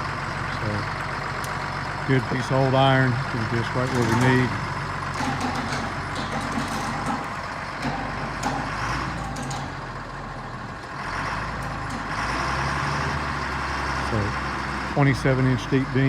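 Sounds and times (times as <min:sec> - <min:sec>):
heavy diesel engine running: 0:00.0 - 0:16.0
sharp clicks and knocks: 0:03.9 - 0:09.8.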